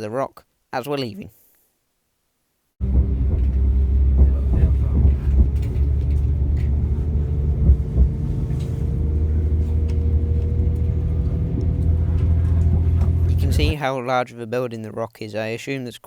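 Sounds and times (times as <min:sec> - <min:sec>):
faint rising whine: 0:02.8 - 0:13.7
knocks: 0:02.8 - 0:13.7
train rumbling from inside carriage: 0:02.8 - 0:13.7.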